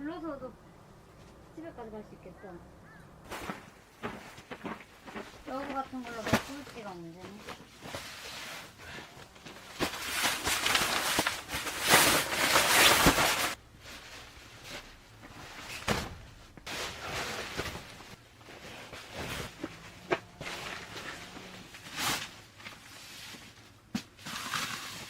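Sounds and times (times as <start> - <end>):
camping gear rustling: 2.8 - 25.0
footsteps: 3.2 - 10.8.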